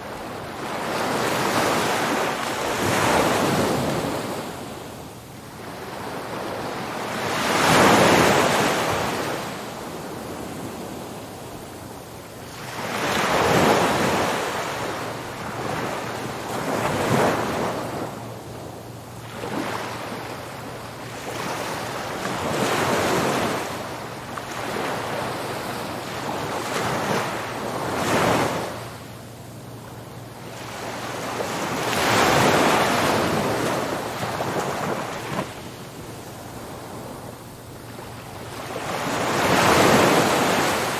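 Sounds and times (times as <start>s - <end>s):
sea waves breaking on beach: 0.0s - 4.9s, 5.6s - 29.1s, 30.4s - 40.9s.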